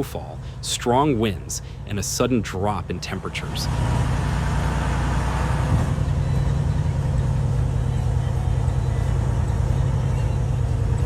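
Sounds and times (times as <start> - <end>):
steady low rumble: 5.6 - 11.0.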